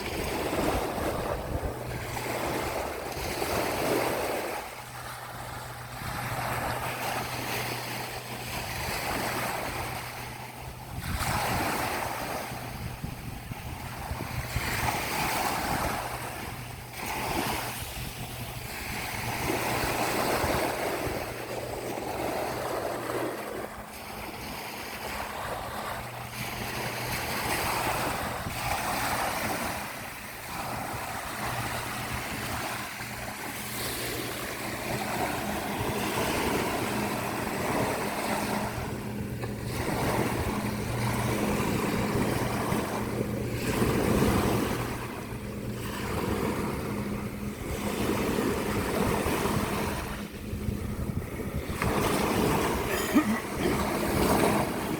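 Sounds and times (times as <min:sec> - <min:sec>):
low motor hum: 0:00.0 - 0:54.9
surf washing on a beach: 0:00.0 - 0:54.9
wind on microphone: 0:00.0 - 0:54.9.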